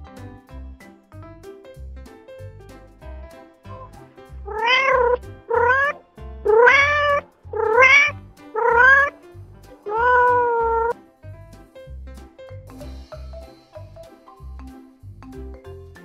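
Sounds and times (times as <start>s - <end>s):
soft background music: 0.0s - 16.0s
wild cat meowing: 4.5s - 9.1s, 9.9s - 10.9s.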